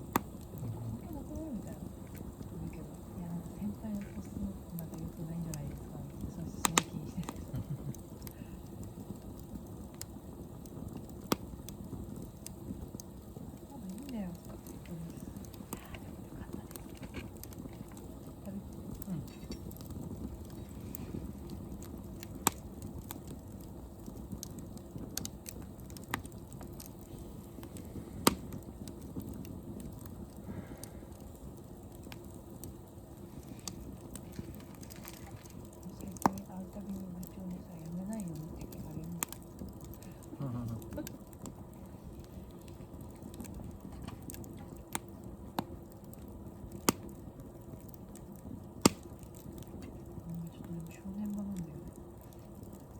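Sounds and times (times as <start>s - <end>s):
sharp pops: 0.0s - 0.6s, 6.6s - 8.5s, 24.0s - 31.2s, 46.8s - 47.2s, 48.8s - 50.0s
low steady rumble: 0.0s - 52.9s
wood fire crackling: 0.0s - 52.9s.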